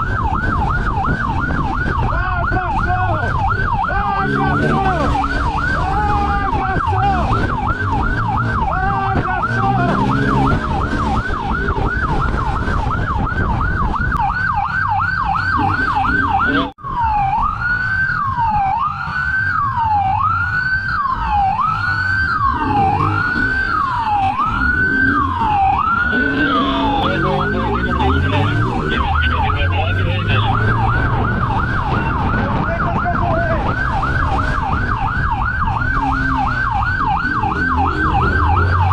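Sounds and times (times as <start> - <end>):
police siren yelp and wail: 0.0 - 38.9
engine revving: 3.8 - 12.9, 15.2 - 16.8, 21.2 - 38.9.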